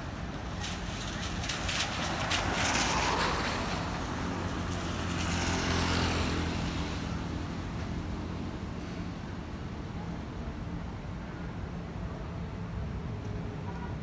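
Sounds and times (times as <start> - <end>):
tyre hiss on wet road: 0.3 - 7.3.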